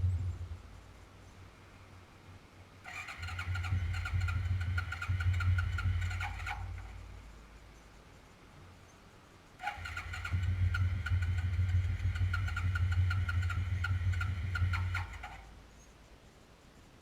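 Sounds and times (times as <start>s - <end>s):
electric starter cranking engine: 2.9s - 7.3s, 9.6s - 15.6s.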